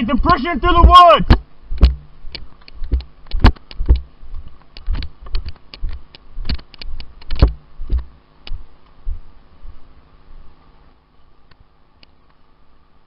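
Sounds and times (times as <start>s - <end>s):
fast footsteps thumping: 0.0s - 6.7s, 7.3s - 9.2s.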